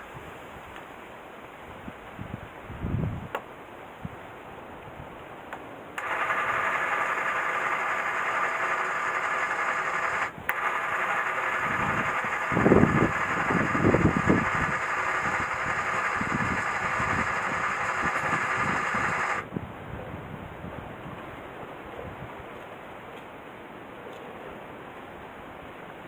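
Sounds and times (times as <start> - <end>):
engine running steadily: 6.0 - 19.5.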